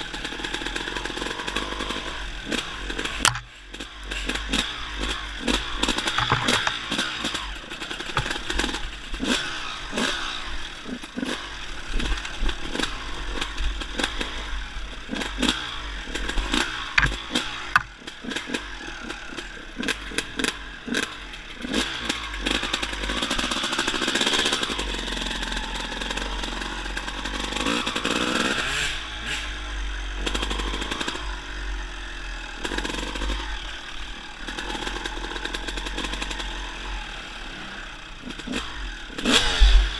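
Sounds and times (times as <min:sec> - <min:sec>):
dirt bike engine revving: 0:00.0 - 0:39.9
knocks and rattles: 0:03.2 - 0:03.5, 0:06.0 - 0:07.0, 0:08.0 - 0:08.9, 0:17.0 - 0:18.0.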